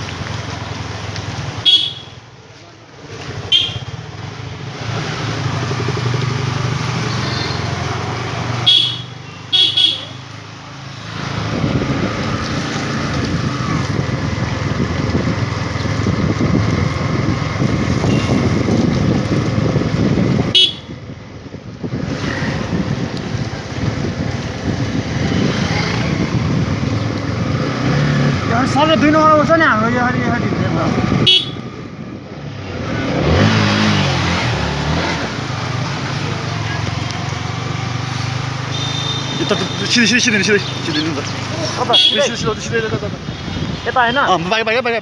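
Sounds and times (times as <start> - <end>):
short horn beeps: 1.7 - 2.2, 3.5 - 4.0, 8.7 - 10.1
motorcycle engine running: 3.0 - 10.7.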